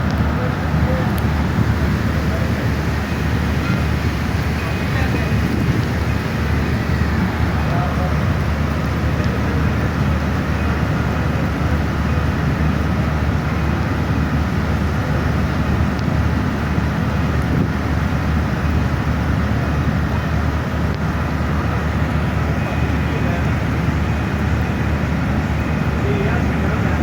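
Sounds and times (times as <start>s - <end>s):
train rumbling: 0.0s - 15.6s.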